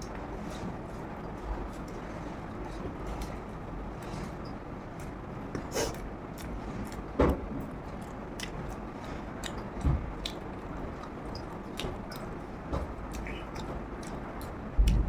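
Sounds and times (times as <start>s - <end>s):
person chewing food: 5.0s - 7.1s, 7.7s - 15.0s.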